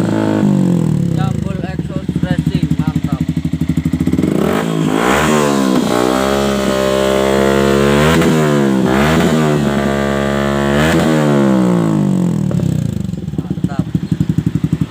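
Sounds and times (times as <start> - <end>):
motorcycle engine revving: 0.0 - 14.9.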